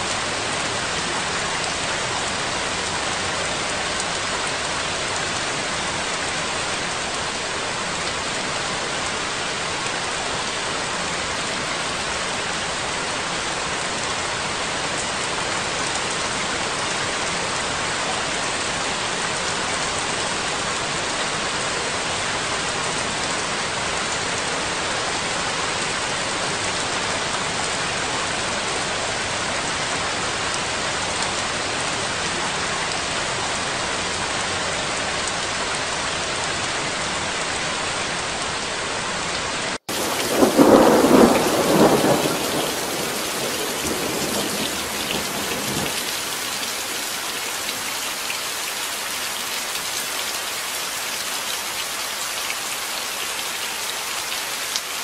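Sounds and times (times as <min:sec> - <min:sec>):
heavy rain: 0:00.0 - 0:55.0
thunder rumble: 0:39.9 - 0:46.4.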